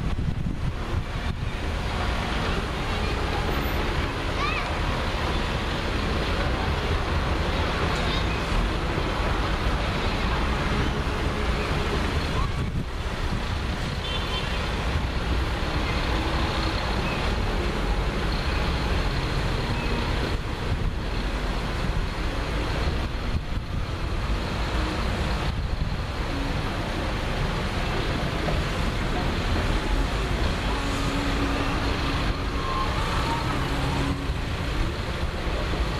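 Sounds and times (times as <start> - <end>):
tractor engines running: 0.0 - 35.9.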